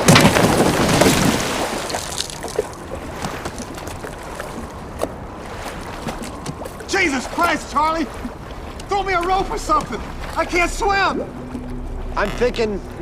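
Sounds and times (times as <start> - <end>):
water lapping: 0.0 - 13.0
water splashing and sloshing: 0.0 - 13.0.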